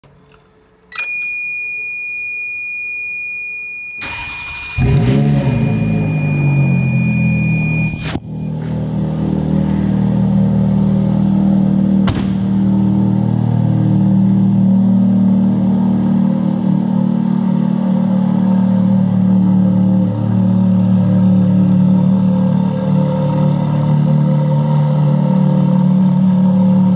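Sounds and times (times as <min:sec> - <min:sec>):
high whine: 0:00.9 - 0:26.9
car engine revving and idling: 0:04.0 - 0:26.9
sharp knock: 0:12.0 - 0:12.5.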